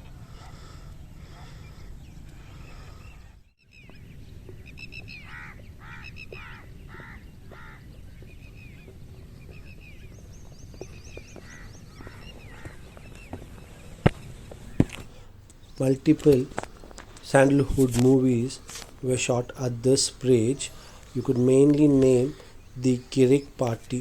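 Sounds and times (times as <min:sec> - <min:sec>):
peafowl honking calls: 0:04.9 - 0:07.8, 0:14.7 - 0:24.0.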